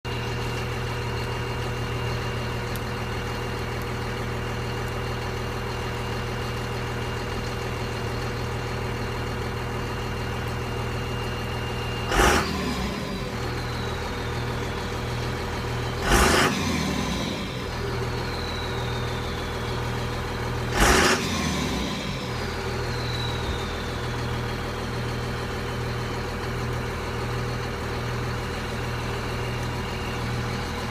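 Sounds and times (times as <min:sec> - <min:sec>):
diesel engine idling and revving: 0:00.0 - 0:30.9
turbocharger whistle: 0:08.1 - 0:26.2.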